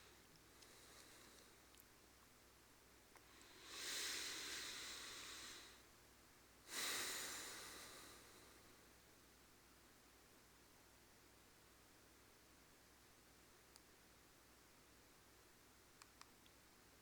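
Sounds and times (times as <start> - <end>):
soft breaths close to microphone: 0.0 - 1.8, 3.2 - 5.9, 6.6 - 9.1.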